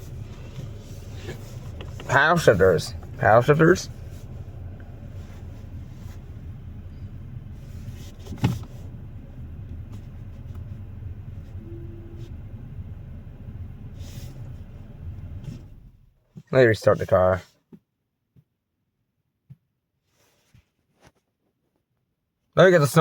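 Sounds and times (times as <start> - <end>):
car engine idling: 0.0 - 16.2.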